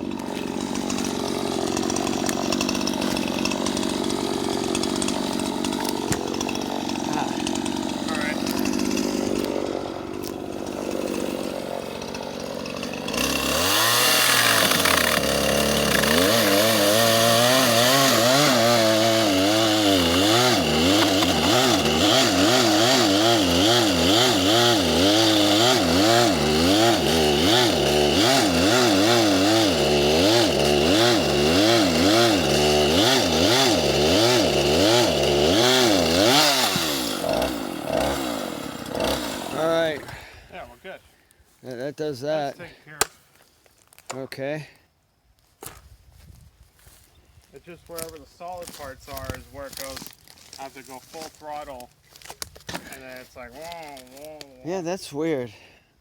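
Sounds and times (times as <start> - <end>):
chainsaw cutting tree trunk: 0.0 - 40.4, 48.0 - 55.3.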